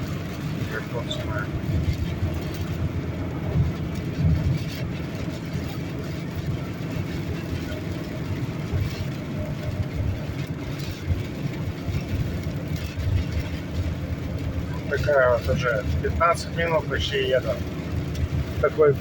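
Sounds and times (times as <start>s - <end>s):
car driving low rumble: 0.0s - 19.0s.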